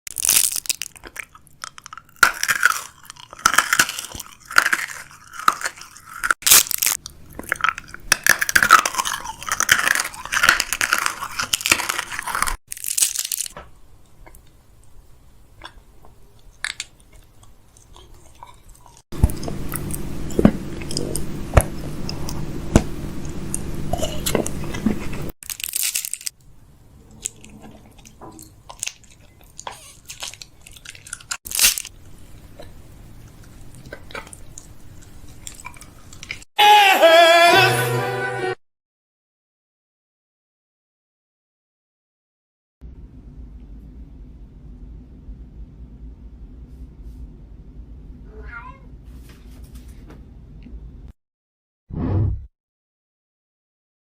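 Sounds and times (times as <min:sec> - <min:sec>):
crunching and chewing: 0:00.1 - 0:36.5
steady low hum: 0:18.8 - 0:25.3, 0:42.8 - 0:48.3.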